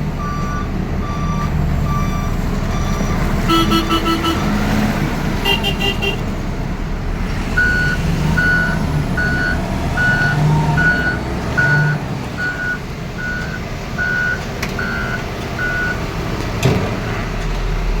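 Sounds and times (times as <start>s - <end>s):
construction machine engine running: 0.0s - 18.0s
reversing alarm beeping: 0.2s - 3.8s, 7.6s - 16.1s.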